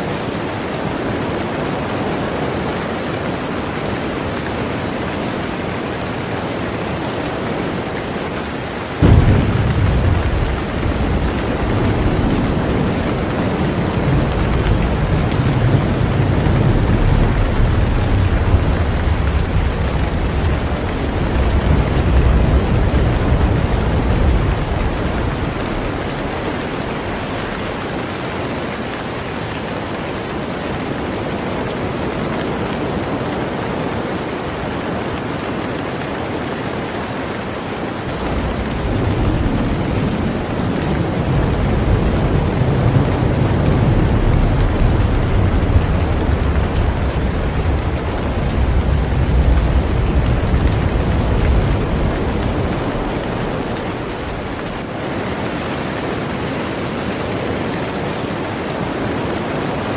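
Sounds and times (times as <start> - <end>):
heavy rain on a boat: 0.0 - 59.9
low rumble: 9.0 - 27.8, 38.2 - 40.6, 41.2 - 54.8.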